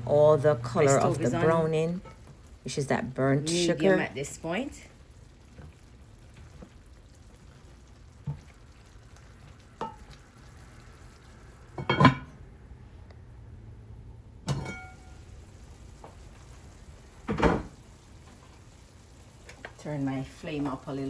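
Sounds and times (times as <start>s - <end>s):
chicken sizzling in a skillet: 0.6s - 12.5s, 14.5s - 21.0s.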